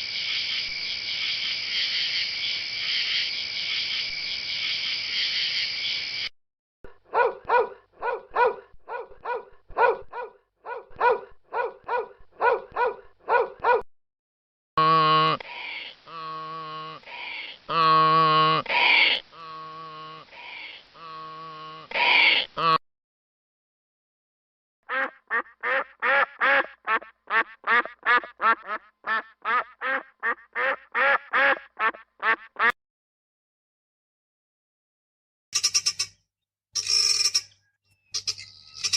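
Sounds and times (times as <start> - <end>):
dog barking: 7.0 - 13.8
duck quacking rapidly: 24.9 - 32.8.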